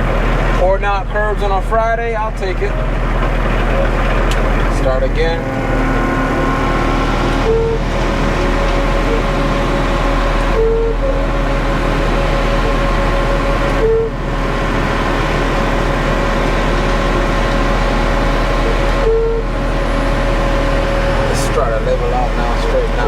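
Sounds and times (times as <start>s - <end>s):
diesel truck engine running: 0.0s - 23.0s
repeating short tone: 7.4s - 7.8s, 10.5s - 11.2s, 13.8s - 14.2s, 18.6s - 19.5s.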